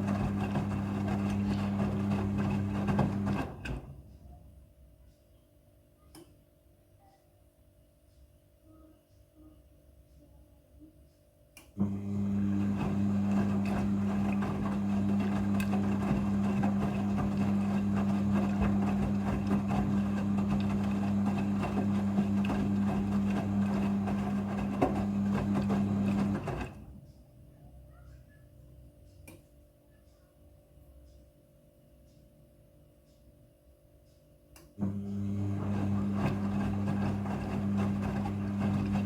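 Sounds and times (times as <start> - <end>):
washing machine hum: 0.0 - 4.6, 11.8 - 27.2, 34.8 - 39.0.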